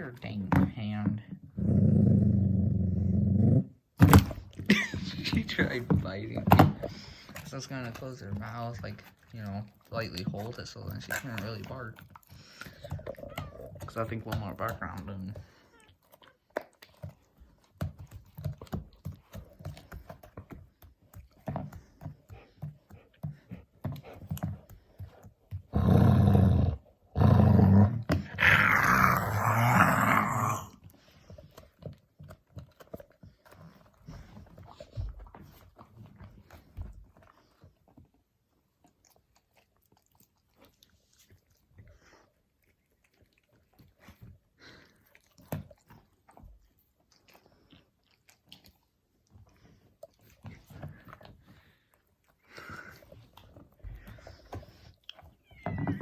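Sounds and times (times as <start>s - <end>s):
dog growling: 1.3s - 17.2s, 25.5s - 31.6s
dog gnawing: 3.1s - 56.0s.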